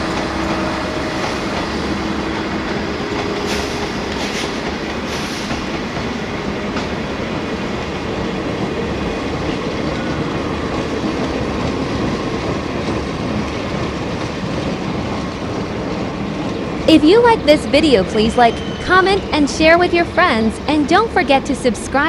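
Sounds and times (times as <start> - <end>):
diesel locomotive rumble: 0.0 - 22.0
train wheels on rails: 0.0 - 22.0
high-pitched wheel squeals: 18.4 - 19.3.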